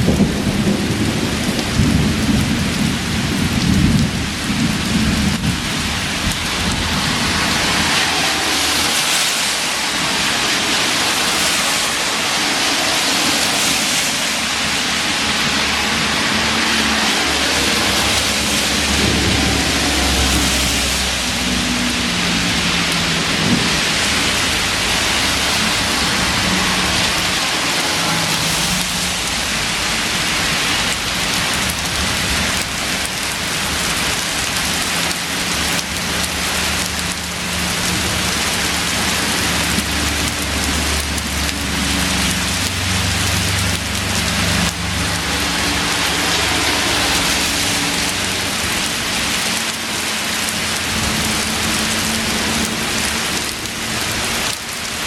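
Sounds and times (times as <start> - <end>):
low thunder rumble: 0.0 - 9.1, 13.4 - 34.8
heavy rain pouring: 0.0 - 55.0.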